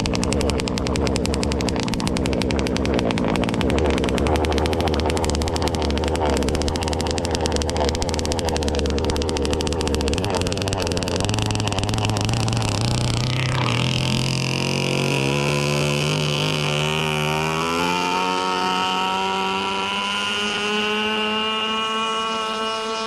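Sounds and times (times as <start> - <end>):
boat two-stroke engine buzzing: 0.0 - 23.0.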